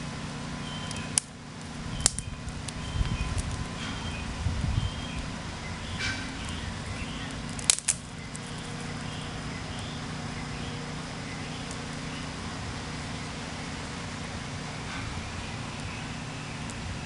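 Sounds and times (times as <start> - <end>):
steady low rumble: 0.0 - 17.0
faint bird chirps: 0.6 - 1.2, 1.9 - 12.5
sharp snaps: 0.8 - 2.8, 7.2 - 8.6, 11.6 - 12.0.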